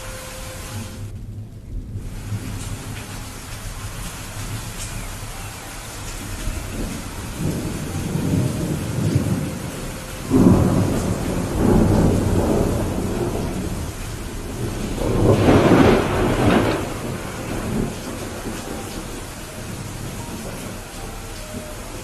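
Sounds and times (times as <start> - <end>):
rolling thunder: 0.0 - 5.3, 5.9 - 22.0
steady rain: 0.0 - 22.0
thunder crack: 6.2 - 20.8.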